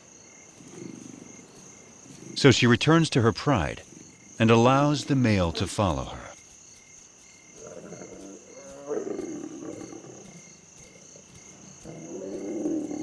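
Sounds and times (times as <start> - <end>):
crickets chirping: 0.0 - 13.0
lion calling: 2.0 - 6.4, 7.6 - 10.4, 11.8 - 13.0.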